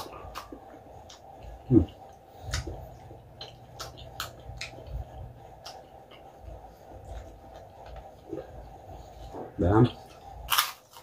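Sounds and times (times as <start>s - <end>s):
person chewing with wet mouth clicks: 0.0s - 5.0s.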